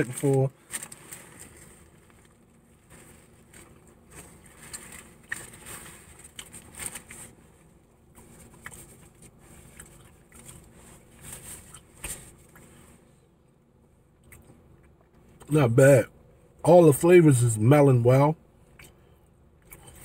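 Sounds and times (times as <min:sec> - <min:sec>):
crunchy chewing: 0:00.8 - 0:07.4, 0:08.1 - 0:12.8.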